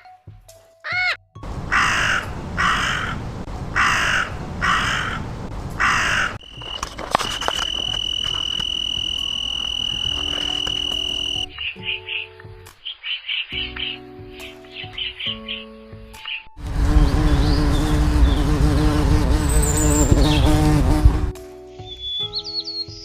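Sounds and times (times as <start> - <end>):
crow cawing: 0.9 - 3.2, 3.8 - 5.2, 5.8 - 6.4
steady high-pitched tone: 6.4 - 11.6.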